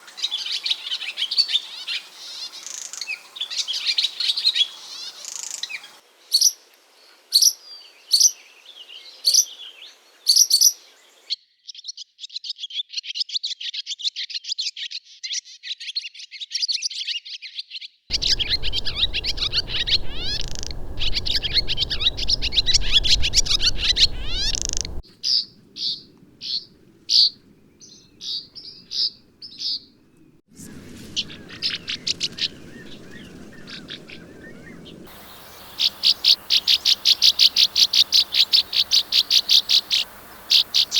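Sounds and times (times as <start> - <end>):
swallows chirping and twittering: 18.1 - 25.0, 31.2 - 40.9.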